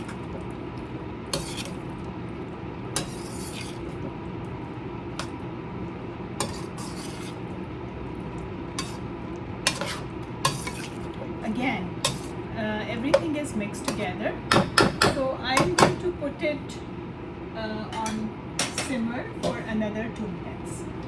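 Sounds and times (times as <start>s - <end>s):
spoon stirring thick curry: 1.3s - 2.0s, 2.9s - 4.2s, 6.4s - 7.5s, 8.3s - 9.1s, 9.7s - 11.1s, 12.0s - 12.4s.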